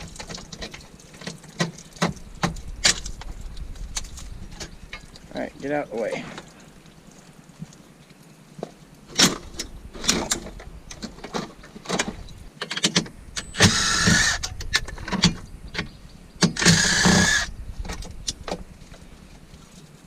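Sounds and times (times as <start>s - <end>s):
cordless drill whirring: 13.5s - 14.4s, 16.6s - 17.5s.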